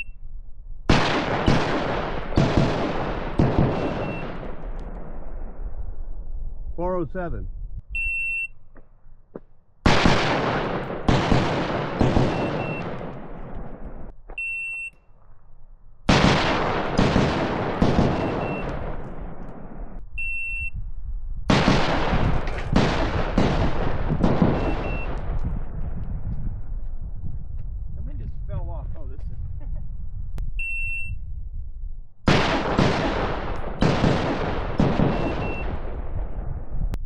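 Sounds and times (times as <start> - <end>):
electronic timer beeps: 0.0 - 0.2, 7.9 - 8.6, 14.4 - 15.1, 18.2 - 18.8, 20.2 - 20.8, 24.6 - 25.1, 30.6 - 31.2, 35.1 - 35.7
pistol shots echoing: 0.9 - 4.8, 9.8 - 13.8, 16.1 - 19.8, 21.5 - 25.3, 32.3 - 36.0.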